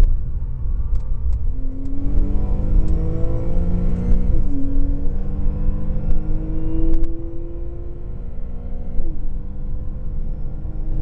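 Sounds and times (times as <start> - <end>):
steady low rumble: 0.0 - 7.1
car engine accelerating: 0.8 - 11.0.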